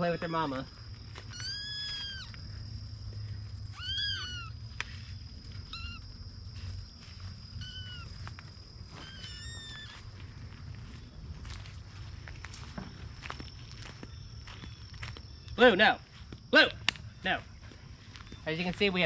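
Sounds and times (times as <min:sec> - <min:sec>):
kittens mewing: 0:00.0 - 0:02.5, 0:03.7 - 0:04.6, 0:05.6 - 0:06.0, 0:07.5 - 0:08.2
steady high-pitched hum: 0:00.0 - 0:18.8.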